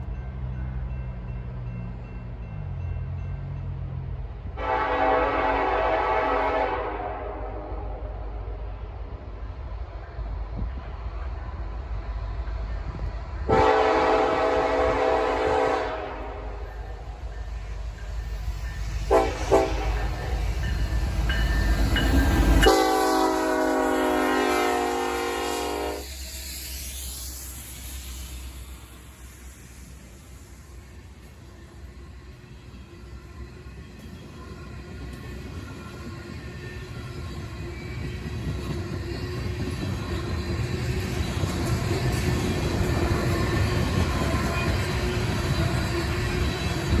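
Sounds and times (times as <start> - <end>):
diesel train engines rumbling: 0.0 - 47.0
locomotive air horn blasts: 4.6 - 8.2, 13.5 - 16.6, 19.1 - 20.0, 22.6 - 26.1.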